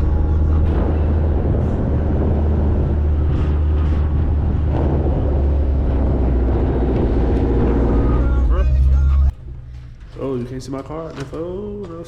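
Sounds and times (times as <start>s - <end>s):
wind buffeting microphone: 0.0s - 8.2s
car engine and road noise: 0.0s - 12.0s.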